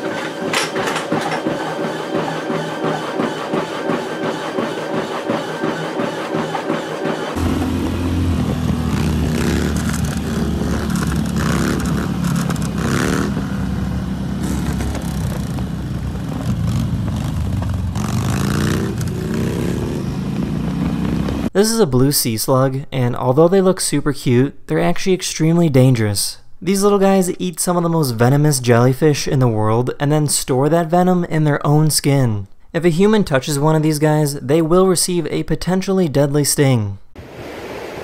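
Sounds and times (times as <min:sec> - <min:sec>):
mechanical whirr: 0:00.0 - 0:17.8
vehicle engine revving: 0:06.6 - 0:21.5.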